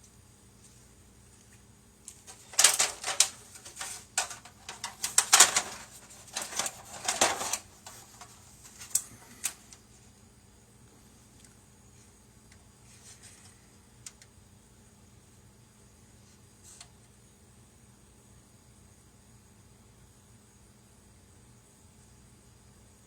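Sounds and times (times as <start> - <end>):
small hard objects clicking: 2.3 - 8.0.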